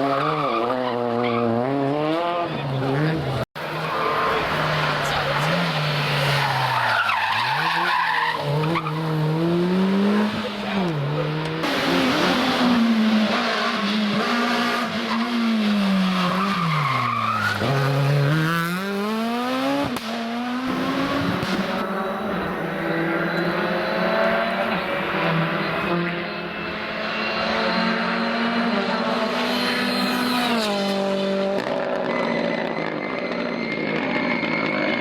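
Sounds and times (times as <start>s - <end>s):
rally car engine revving: 0.0s - 35.0s.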